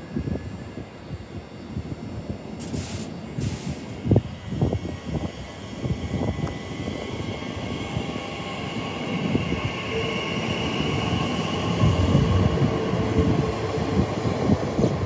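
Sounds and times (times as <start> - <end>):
train wheel rumble on rails: 0.0 - 15.0.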